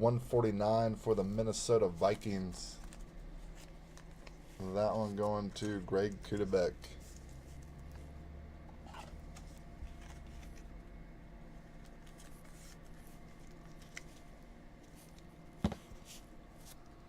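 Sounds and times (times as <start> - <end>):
steady low hum: 0.0 - 17.0
trading cards rustling and clicking: 2.0 - 8.1, 8.8 - 10.8, 11.7 - 17.0.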